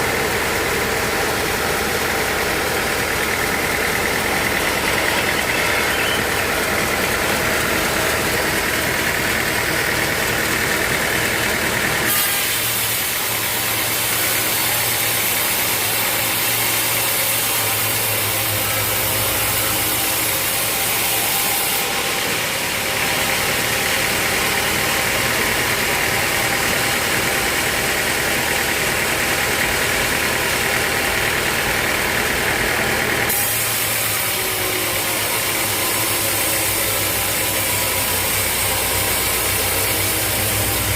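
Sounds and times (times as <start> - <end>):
sawmill machinery drone: 0.0 - 40.9
machinery hiss: 33.3 - 40.9.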